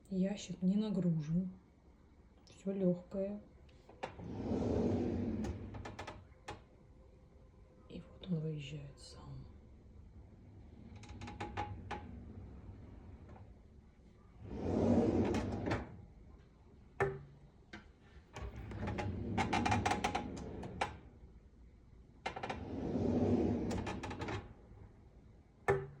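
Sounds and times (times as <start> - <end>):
drawer runners rolling and creaking: 3.9 - 6.6, 10.1 - 21.2, 22.2 - 24.8.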